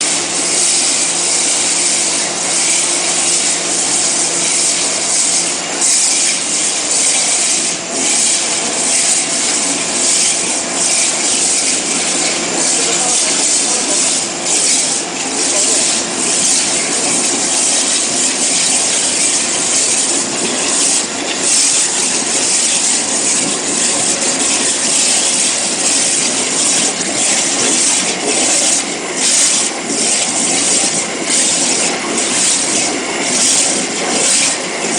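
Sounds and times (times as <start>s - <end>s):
waterjet cutting hiss: 0.0s - 34.9s.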